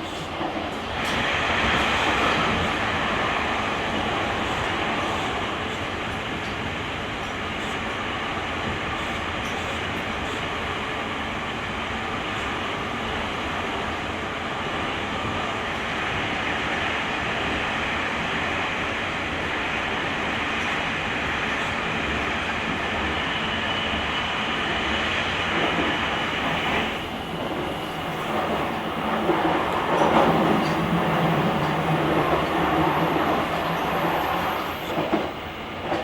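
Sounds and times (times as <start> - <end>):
electric train running: 23.9 - 36.0.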